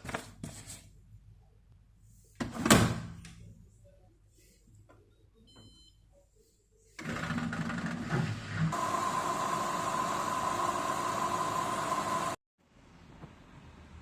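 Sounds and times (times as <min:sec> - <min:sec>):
kitchen appliance motor whining: 0:07.0 - 0:12.4.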